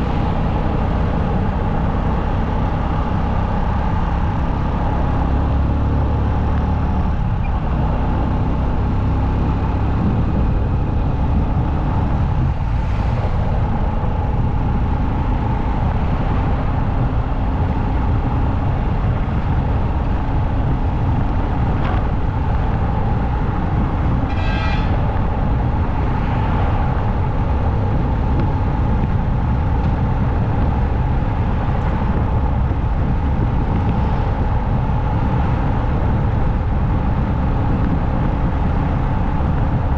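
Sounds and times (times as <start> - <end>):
wind noise: 0.0 - 39.9
vehicle horn toot: 24.3 - 25.1.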